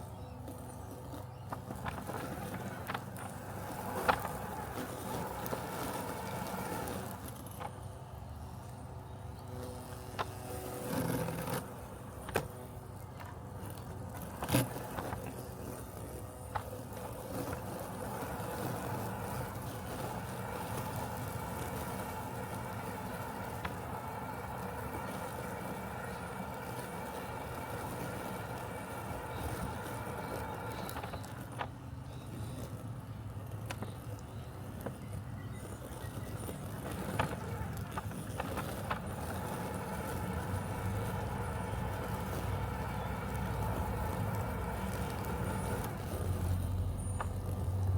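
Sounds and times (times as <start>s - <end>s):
robotic lawn mower running: 0.0s - 47.9s.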